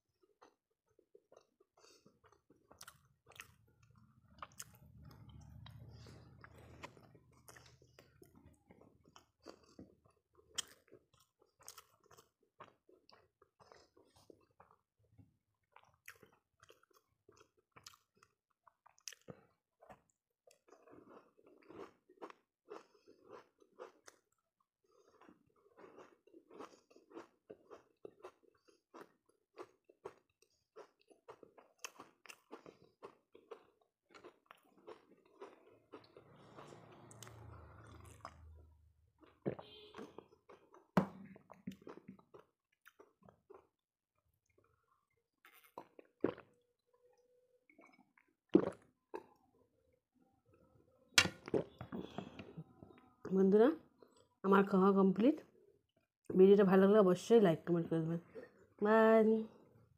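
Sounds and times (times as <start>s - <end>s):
person chewing: 0.1s - 14.8s, 15.6s - 43.8s, 44.5s - 46.9s, 47.7s - 49.5s, 51.2s - 53.0s.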